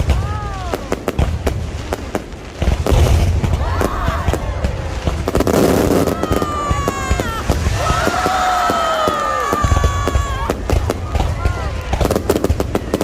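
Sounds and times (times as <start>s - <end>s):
fireworks cracks and bangs: 0.0s - 13.0s
fireworks heavy low booms: 0.0s - 13.0s.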